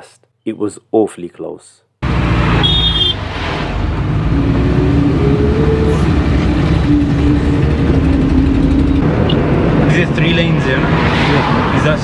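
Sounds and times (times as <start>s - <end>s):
car engine and tyre rumble: 2.0s - 12.0s
humming tone: 4.1s - 9.4s.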